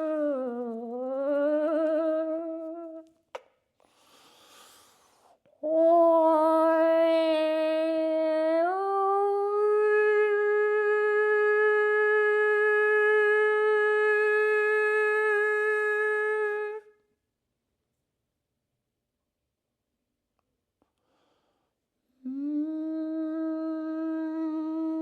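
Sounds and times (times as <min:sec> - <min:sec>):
person humming a held note: 0:00.0 - 0:03.1, 0:22.2 - 0:25.0.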